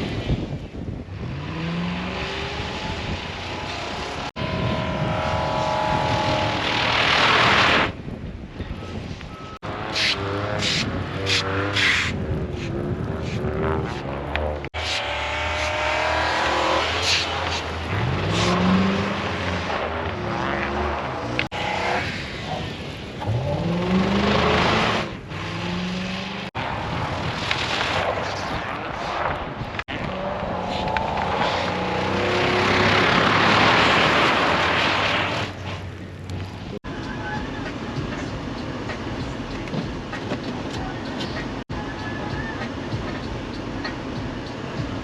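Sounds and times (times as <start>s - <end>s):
car engine revving: 1.1s - 8.0s, 9.6s - 27.0s, 28.5s - 36.8s.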